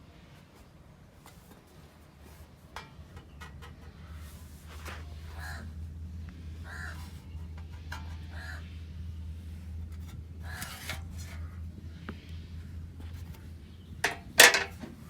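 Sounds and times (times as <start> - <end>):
crows cawing: 5.4 - 5.7, 6.6 - 7.0.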